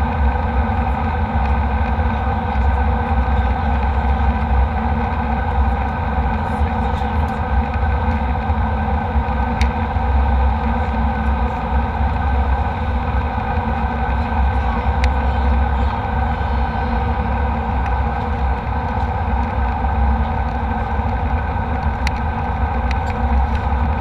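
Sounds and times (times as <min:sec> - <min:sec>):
jet cabin engine drone: 0:00.0 - 0:24.0
faint clicks: 0:20.4 - 0:23.9.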